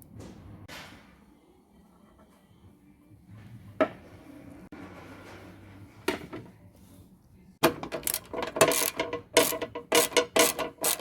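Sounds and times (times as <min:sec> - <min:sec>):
ratchet spanner clicking: 0:08.0 - 0:11.0.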